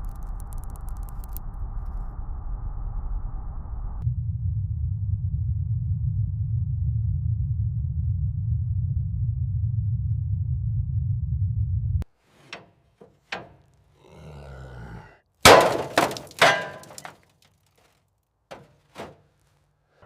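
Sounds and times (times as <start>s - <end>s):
low rumble: 1.4s - 12.0s
crashing impacts: 15.4s - 17.3s, 18.5s - 19.3s
hard objects knocking: 15.5s - 17.2s.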